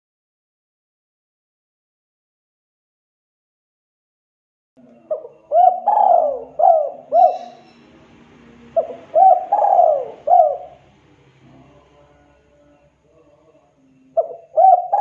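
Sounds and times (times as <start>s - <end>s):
dove cooing: 4.8s - 11.8s, 14.2s - 15.0s.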